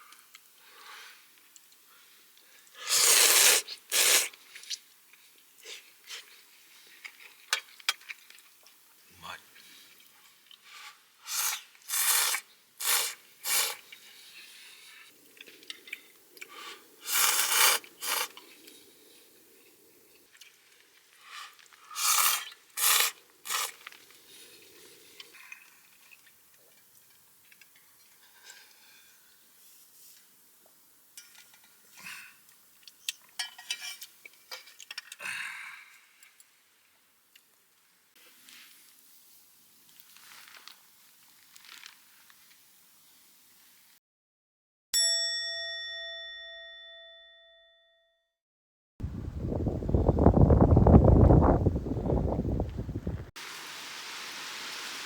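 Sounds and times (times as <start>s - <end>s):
person slurping noodles: 2.8s - 4.4s, 11.3s - 14.0s, 16.7s - 18.5s, 21.9s - 23.8s
utensils scraping a bowl: 17.1s - 18.4s.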